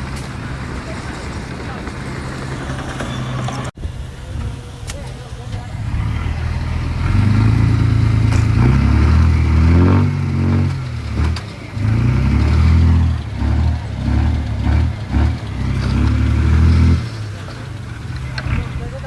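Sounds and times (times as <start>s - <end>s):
earthmoving machine engine revving: 5.2s - 19.0s.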